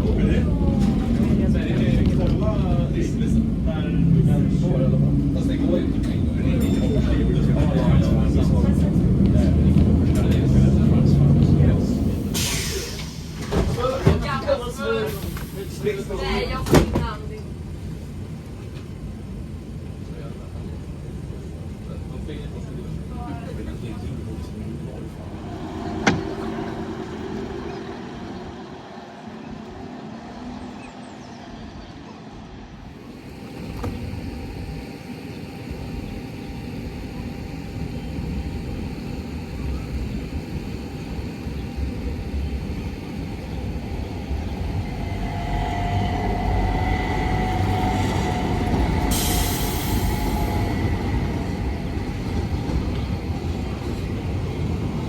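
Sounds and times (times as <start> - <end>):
tram rumbling on rails: 0.0 - 55.0
steady whine: 24.9 - 31.0.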